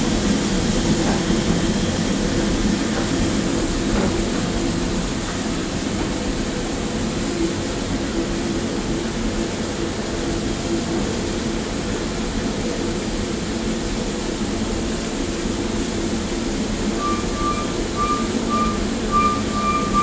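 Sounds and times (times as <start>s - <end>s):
train coaches rumbling past: 15.5s - 20.0s.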